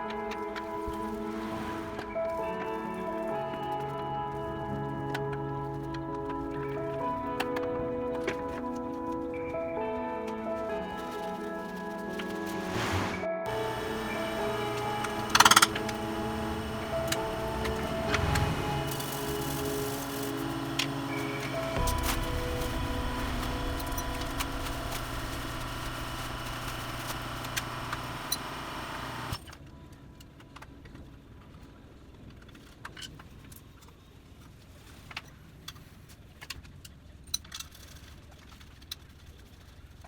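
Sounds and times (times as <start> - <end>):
two-stroke scooter engine running: 13.5 - 29.4.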